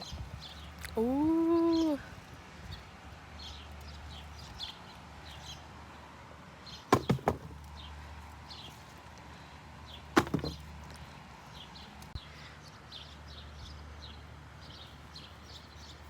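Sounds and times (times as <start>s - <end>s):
birds chirping: 0.0s - 2.1s
sharp knocks: 6.9s - 7.6s, 10.2s - 10.6s.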